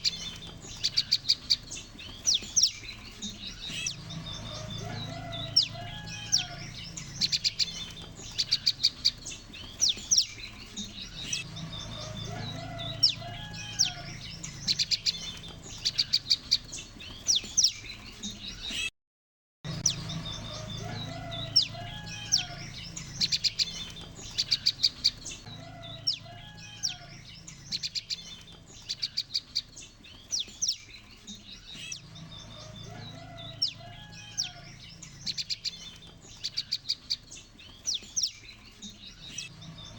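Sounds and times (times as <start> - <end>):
birds chirping and trilling: 0.0 - 18.9, 19.7 - 39.9.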